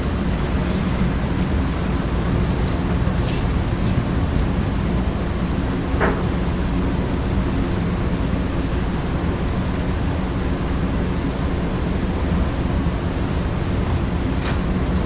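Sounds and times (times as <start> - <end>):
sharp clicks: 5.4 - 12.7, 13.4 - 14.7.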